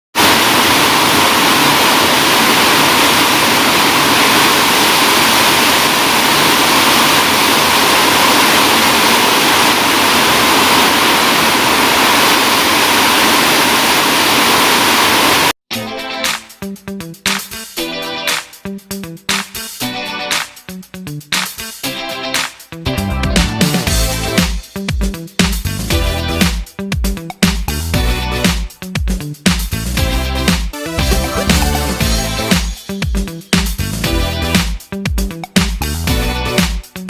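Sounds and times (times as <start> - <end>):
heavy rain pouring: 0.2 - 15.6
music: 15.7 - 37.0.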